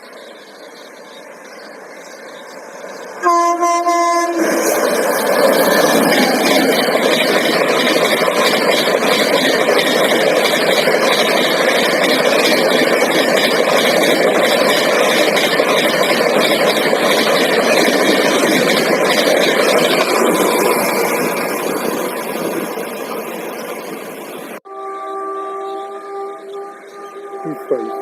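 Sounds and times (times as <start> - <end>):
train passing at speed: 0.0 - 28.0.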